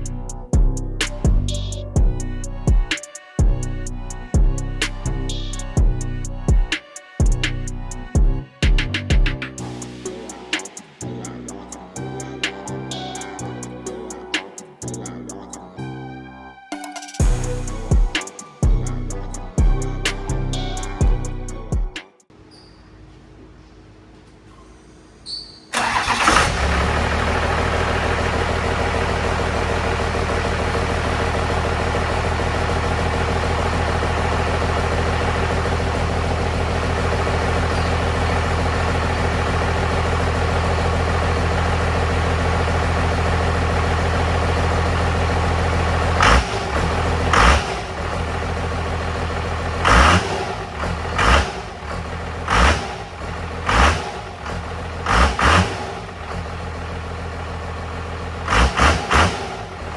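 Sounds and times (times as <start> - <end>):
diesel engine starting and idling: 0.0 - 16.2, 17.2 - 21.8, 24.0 - 59.9
engine throttle revs: 25.7 - 59.9.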